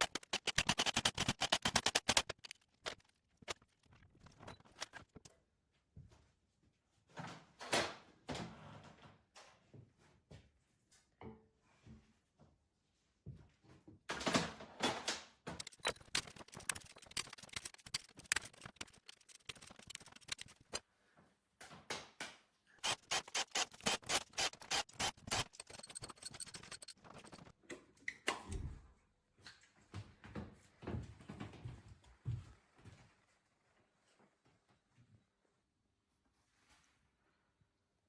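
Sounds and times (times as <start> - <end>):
hand tools clicking on metal: 0.0 - 3.0, 15.6 - 20.8, 22.8 - 27.5.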